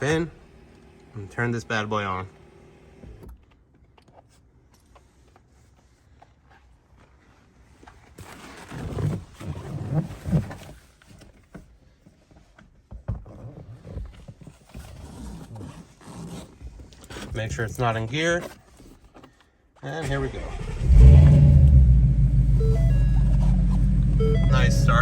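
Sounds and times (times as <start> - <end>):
rustling and handling noise: 3.4 - 19.8.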